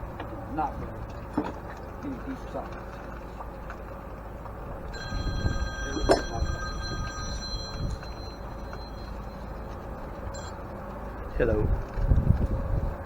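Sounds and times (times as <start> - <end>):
phone ringing: 4.9 - 10.8.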